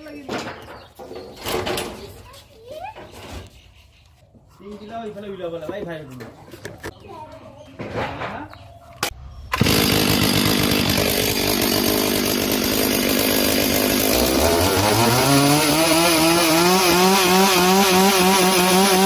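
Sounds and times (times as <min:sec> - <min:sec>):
chainsaw idling and revving: 0:09.5 - 0:19.0.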